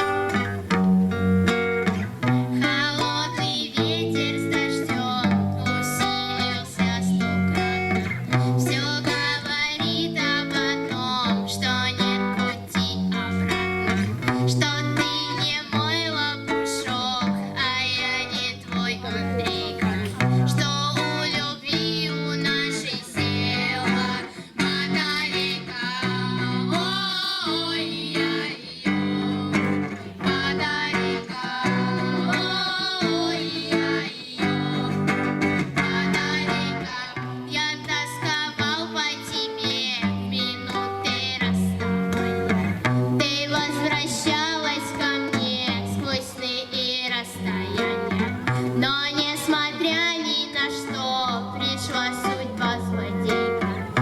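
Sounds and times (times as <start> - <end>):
girls singing: 0.0 - 54.0
guitar accompaniment: 0.0 - 54.0.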